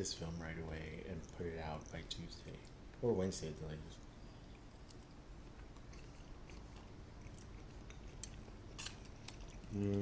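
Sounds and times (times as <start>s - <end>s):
person chewing food: 4.2s - 10.0s
person humming briefly: 9.7s - 10.0s.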